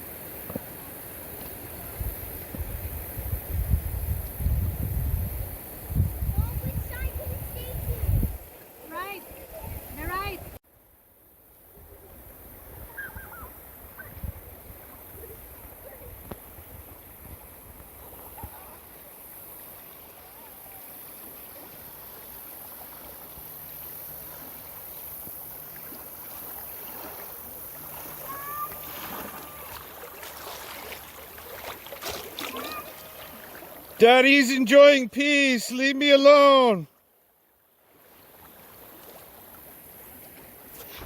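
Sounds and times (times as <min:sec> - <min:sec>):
wind rumbling on microphone: 0:01.7 - 0:08.5
water lapping and trickling: 0:05.4 - 0:10.6, 0:11.5 - 0:34.4, 0:36.9 - 0:41.0.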